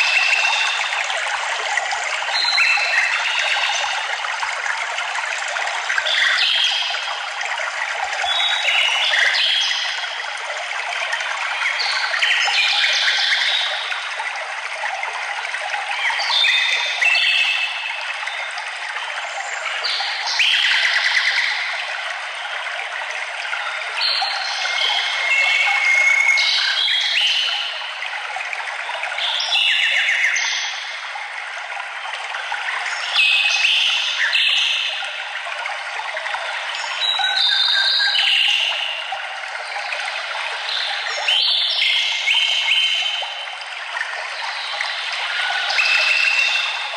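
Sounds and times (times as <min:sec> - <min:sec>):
running water rushing: 0:00.0 - 0:46.9
stream trickling: 0:00.0 - 0:46.9
whistled bird song: 0:23.6 - 0:27.9, 0:29.2 - 0:30.9, 0:36.5 - 0:39.1, 0:40.6 - 0:43.4, 0:44.4 - 0:46.9.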